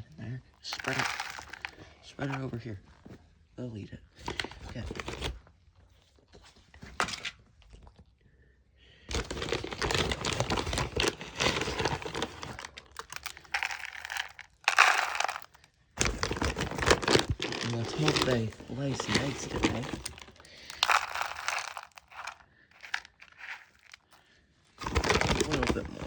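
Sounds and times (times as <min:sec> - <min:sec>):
plastic bag crinkling: 0:00.7 - 0:01.9, 0:09.1 - 0:24.2, 0:24.8 - 0:26.0.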